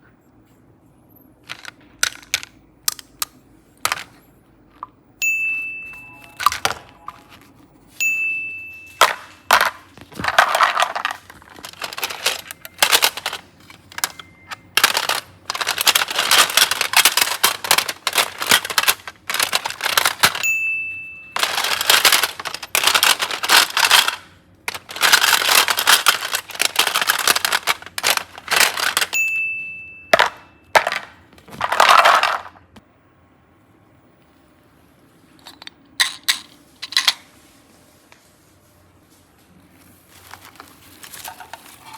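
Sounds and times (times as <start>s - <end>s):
high bell-like ding: 5.2s - 7.1s, 8.0s - 9.4s, 20.4s - 21.4s, 29.2s - 30.7s.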